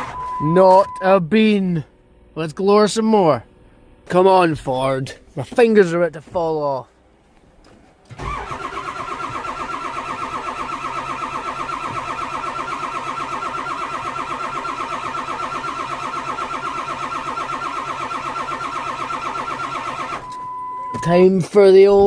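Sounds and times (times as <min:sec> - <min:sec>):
starter motor cranking engine: 0:08.1 - 0:20.4.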